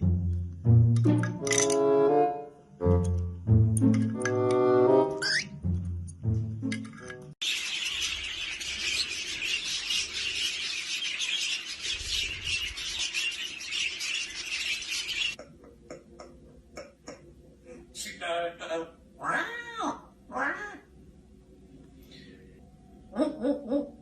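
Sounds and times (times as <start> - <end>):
parrots chattering and squawking: 5.2 - 5.5, 7.4 - 15.4, 18.0 - 20.9.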